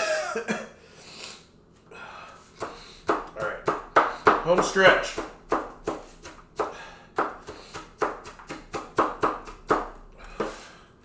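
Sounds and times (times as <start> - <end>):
knife chopping on cutting board: 2.6 - 10.6.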